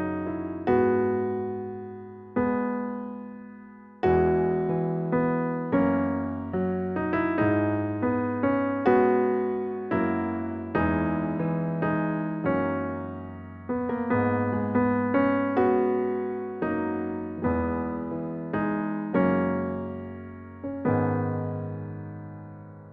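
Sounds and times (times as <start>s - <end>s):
electric piano music: 0.0s - 22.9s.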